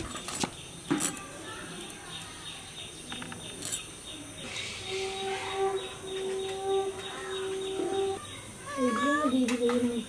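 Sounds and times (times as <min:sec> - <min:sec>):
birds chirping: 0:00.0 - 0:10.0
long steady tone: 0:04.1 - 0:09.5.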